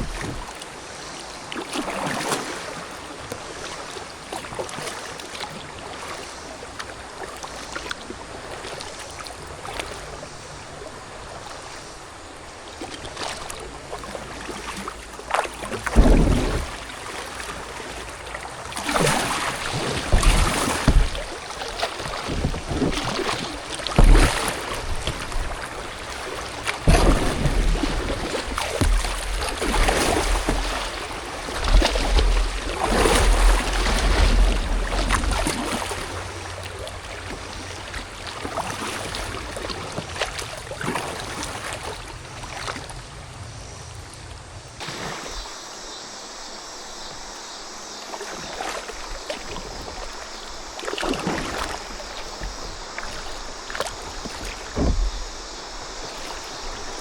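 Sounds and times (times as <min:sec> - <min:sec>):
wind rumbling on microphone: 0:00.0 - 0:00.6, 0:15.5 - 0:45.4, 0:51.8 - 0:57.0
paddle strokes splashing water: 0:00.0 - 0:57.0.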